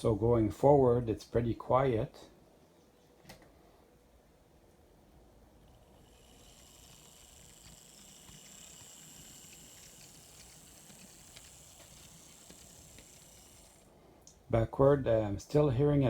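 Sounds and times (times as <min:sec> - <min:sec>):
model train motor whine: 0:05.6 - 0:13.9.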